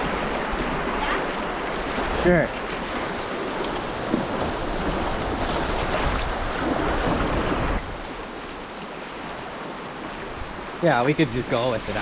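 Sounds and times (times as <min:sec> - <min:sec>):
wind buffeting microphone: 0:00.0 - 0:08.4
river rapids rushing: 0:00.0 - 0:12.0.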